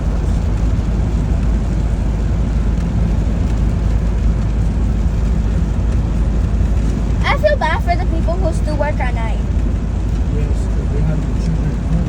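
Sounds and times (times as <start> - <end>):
low rumble of strong wind: 0.0 - 12.0.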